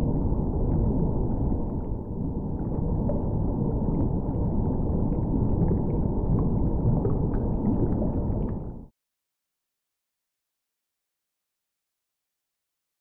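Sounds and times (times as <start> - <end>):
low underwater rumbling wash: 0.0 - 8.9.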